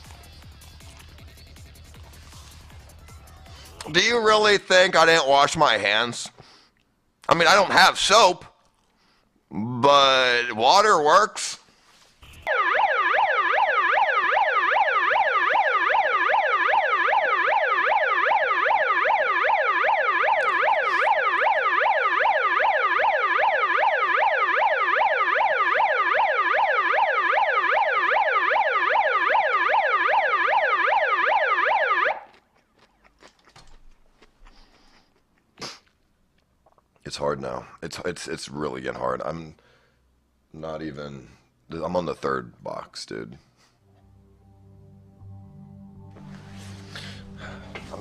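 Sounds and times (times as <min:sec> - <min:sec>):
siren yelping: 0:12.4 - 0:32.4.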